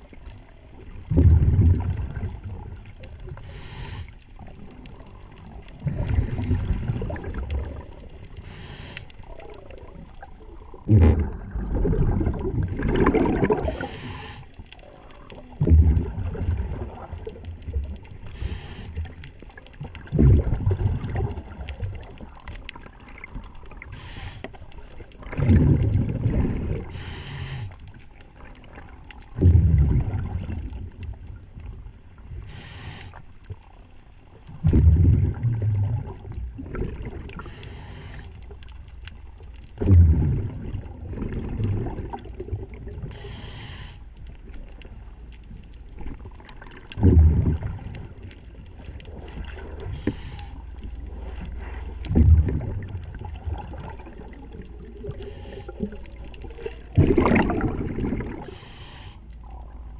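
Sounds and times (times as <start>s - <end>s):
exhaled bubbles rumbling: 0.0s - 59.9s
regulator hiss on inhale: 3.3s - 6.4s, 8.3s - 9.6s, 13.6s - 15.3s, 18.2s - 19.4s, 23.8s - 25.0s, 26.6s - 28.1s, 32.2s - 33.4s, 37.3s - 38.6s, 43.0s - 44.3s, 49.8s - 52.0s, 55.0s - 56.8s, 58.4s - 59.6s.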